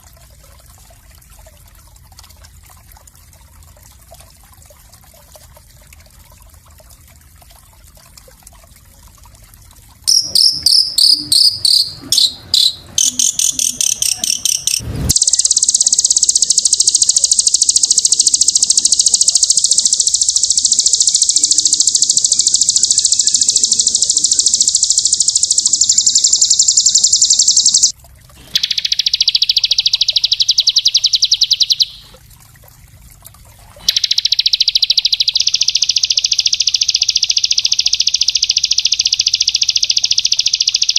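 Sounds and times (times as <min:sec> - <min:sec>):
songbird fast trills: 0:10.1 - 0:27.9, 0:28.5 - 0:32.2, 0:33.8 - 0:40.9.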